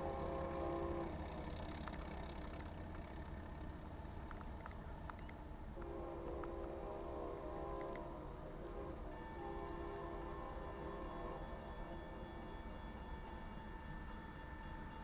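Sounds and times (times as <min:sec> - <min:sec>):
locomotive air horn blasts: 0:00.0 - 0:01.6, 0:05.8 - 0:14.2
locomotive rumbling: 0:00.0 - 0:15.0.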